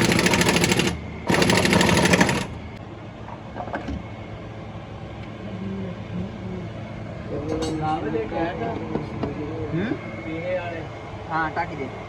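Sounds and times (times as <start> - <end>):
pneumatic impact wrench rattling: 0.0 - 2.6.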